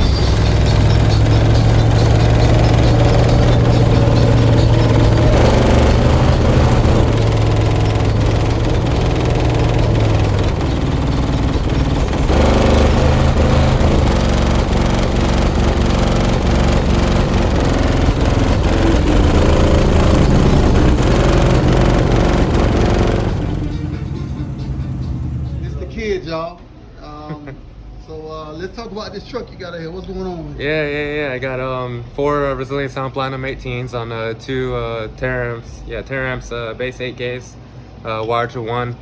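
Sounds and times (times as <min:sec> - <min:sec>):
loud subwoofer bass notes: 0:00.0 - 0:26.3.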